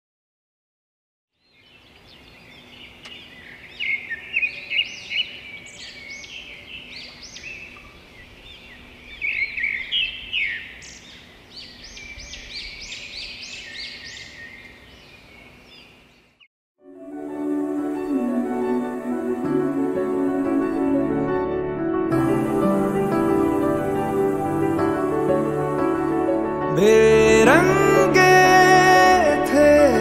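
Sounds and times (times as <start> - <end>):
birds chirping and singing: 1.4 - 16.5.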